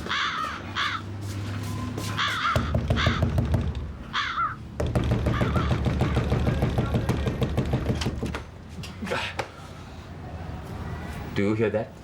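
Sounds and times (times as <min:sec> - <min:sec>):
crows cawing: 0:00.0 - 0:01.1, 0:02.1 - 0:03.4, 0:04.0 - 0:05.9.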